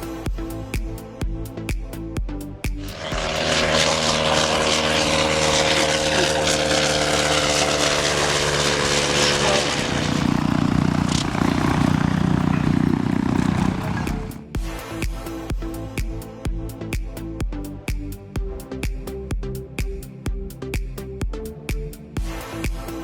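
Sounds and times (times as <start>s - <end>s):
propeller aircraft flying past: 2.7s - 14.6s.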